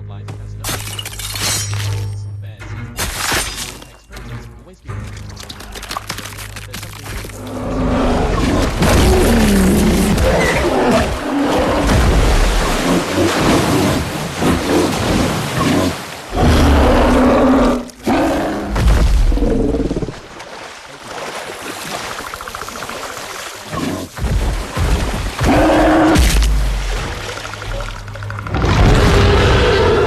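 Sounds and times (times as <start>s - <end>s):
animal roars and growls: 7.4s - 20.2s, 25.4s - 26.6s, 27.8s - 30.0s.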